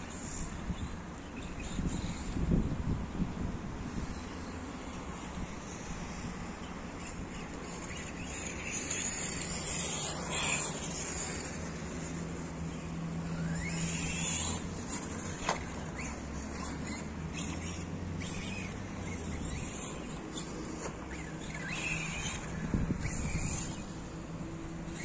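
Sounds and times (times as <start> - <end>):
rc car motor whining: 0.0 - 25.0.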